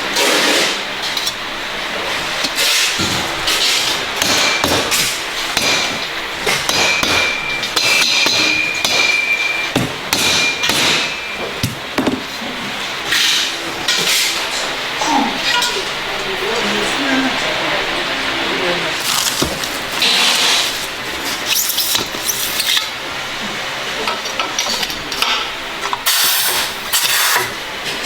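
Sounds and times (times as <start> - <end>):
high ringing tone: 8.6 - 9.8.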